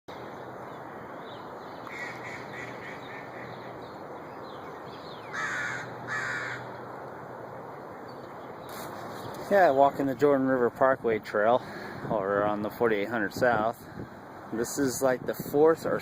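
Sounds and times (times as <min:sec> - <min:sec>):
steady background hiss: 0:00.1 - 0:16.0
bird cawing: 0:00.8 - 0:06.8.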